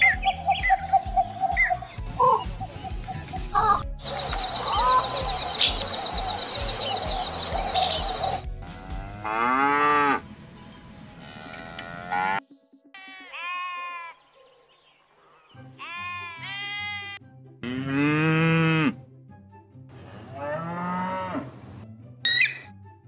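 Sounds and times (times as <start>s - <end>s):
faint background music: 0.0s - 23.0s
farm animals calling: 0.1s - 8.4s, 11.2s - 12.4s, 13.0s - 19.0s.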